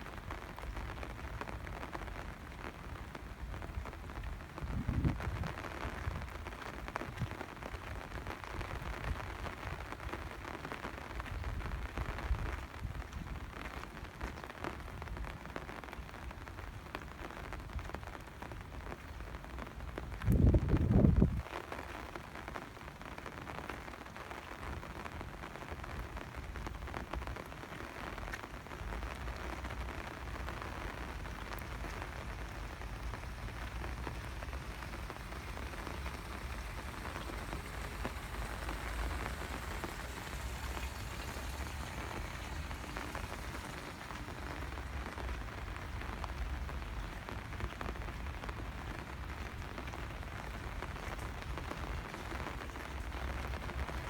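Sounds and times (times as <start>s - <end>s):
rain on hard surfaces: 0.0s - 54.0s
low rumble: 30.2s - 46.3s.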